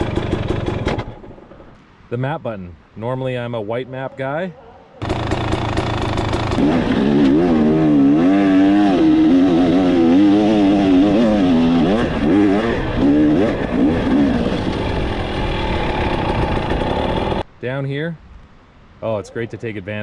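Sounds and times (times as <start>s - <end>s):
dirt bike engine revving: 5.0s - 17.4s.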